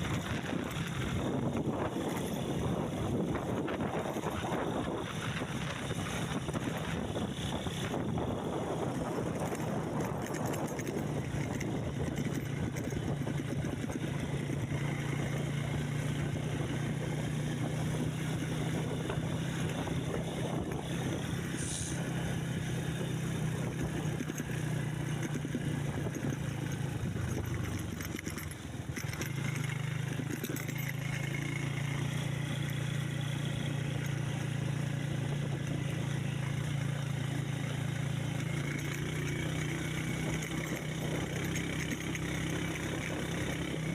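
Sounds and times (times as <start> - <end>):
vehicle engine running: 0.0 - 43.9.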